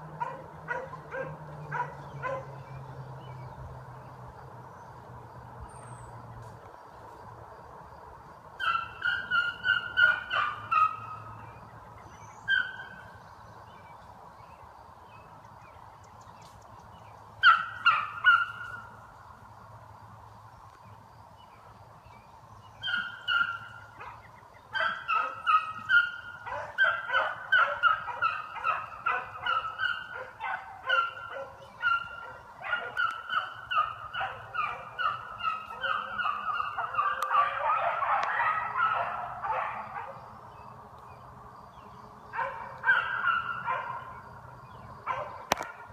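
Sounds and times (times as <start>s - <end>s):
beagles baying: 0.0s - 2.9s, 8.6s - 11.6s, 12.4s - 13.1s, 17.4s - 19.0s, 22.8s - 40.6s, 42.3s - 44.3s.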